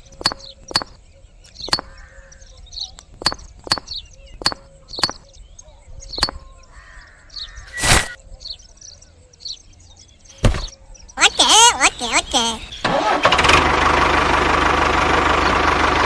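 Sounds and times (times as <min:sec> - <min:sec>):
sharp clicks or knocks: 0:00.0 - 0:02.0, 0:03.0 - 0:05.2, 0:06.2 - 0:06.4
birds calling: 0:00.0 - 0:13.8.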